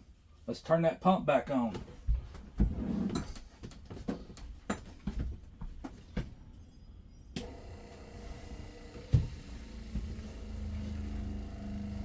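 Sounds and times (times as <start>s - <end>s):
small knocks and rattles: 1.7s - 6.4s
water pump humming: 7.4s - 12.0s.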